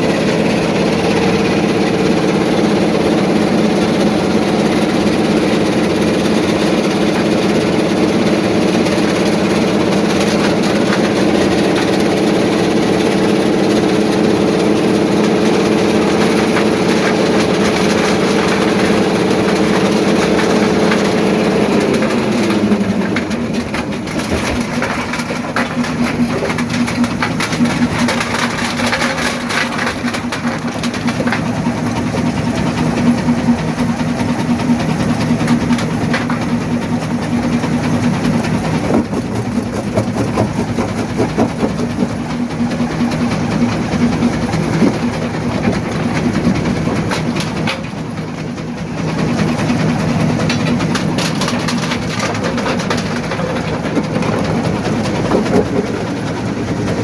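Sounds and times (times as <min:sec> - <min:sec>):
jaw crusher drive humming: 0:00.0 - 0:57.0
rock clattering and knocking: 0:21.9 - 0:32.2, 0:38.2 - 0:42.8, 0:44.0 - 0:47.9, 0:50.4 - 0:57.0.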